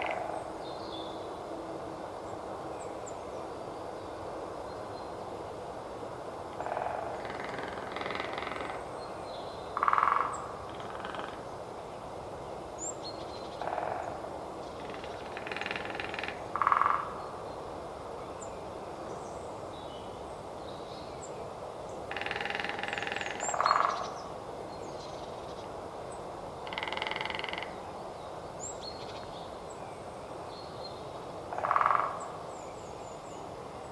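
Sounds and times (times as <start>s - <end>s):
woodpecker drumming on wood: 9.8s - 11.4s, 14.8s - 17.1s, 22.1s - 24.0s, 26.7s - 27.7s, 31.5s - 32.2s
faint small bird calls: 22.1s - 25.8s.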